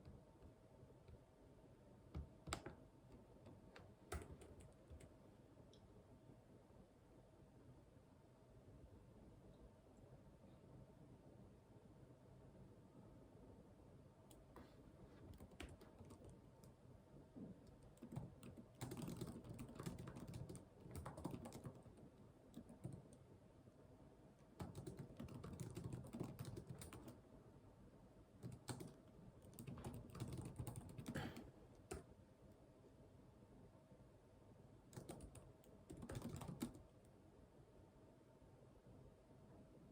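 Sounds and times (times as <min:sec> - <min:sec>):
computer keyboard typing: 0:03.4 - 0:05.1, 0:15.2 - 0:16.8, 0:17.6 - 0:23.2, 0:24.6 - 0:27.2, 0:28.4 - 0:32.1, 0:34.9 - 0:36.9.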